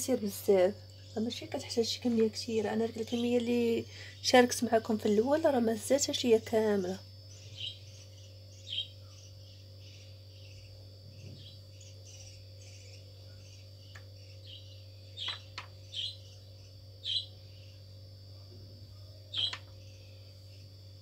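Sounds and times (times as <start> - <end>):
bird chirping: 7.3 - 17.8, 19.3 - 20.0.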